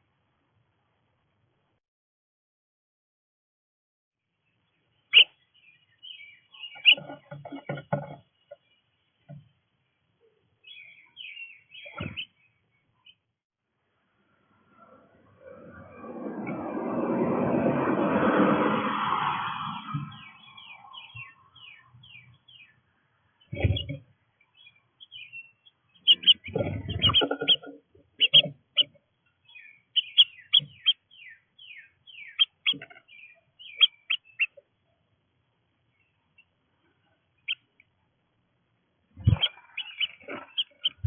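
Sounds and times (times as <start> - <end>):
small birds chirping: 4.4 - 13.3, 19.8 - 38.0, 39.0 - 41.0.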